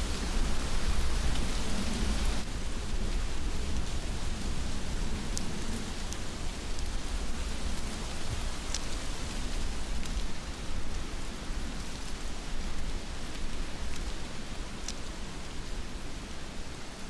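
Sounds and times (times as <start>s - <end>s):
heavy rain: 0.0s - 17.0s
raindrop ticks: 3.7s - 15.8s.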